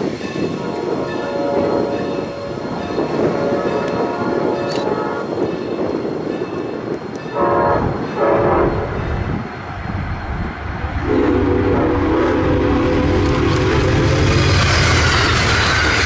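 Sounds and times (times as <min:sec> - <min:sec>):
train rumbling on rails: 0:00.0 - 0:16.0
train whistle blasts: 0:00.5 - 0:05.3, 0:07.4 - 0:09.0, 0:11.0 - 0:14.6.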